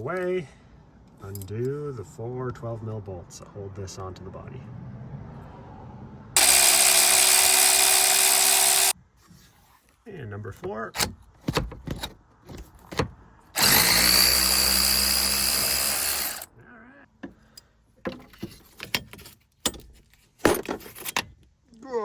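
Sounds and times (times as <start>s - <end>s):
power driver whining: 6.4s - 9.0s, 13.6s - 16.5s.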